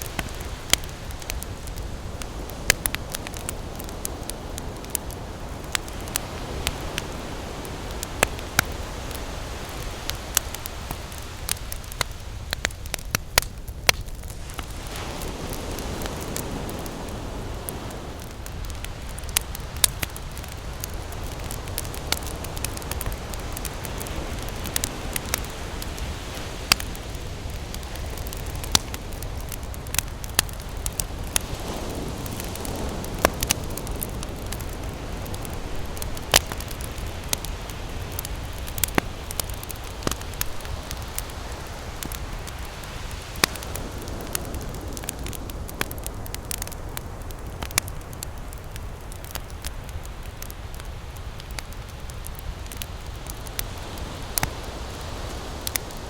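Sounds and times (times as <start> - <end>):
campfire crackling and popping: 0.0 - 56.0
ocean waves rushing: 14.3 - 45.7.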